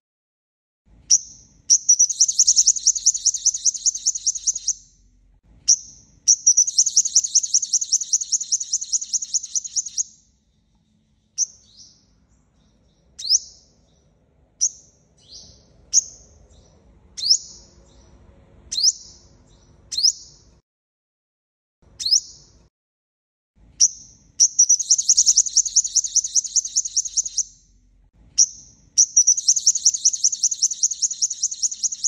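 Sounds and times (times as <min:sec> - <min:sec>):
bird high trill: 0:01.1 - 0:04.9, 0:06.3 - 0:10.1, 0:24.4 - 0:27.6, 0:28.4 - 0:32.0.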